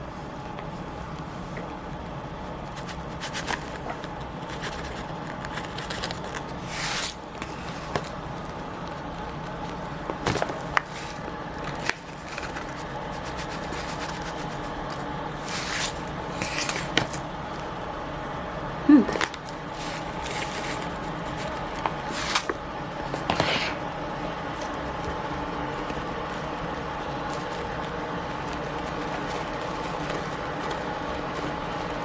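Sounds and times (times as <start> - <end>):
light clicks and scrapes: 9.6 - 17.2.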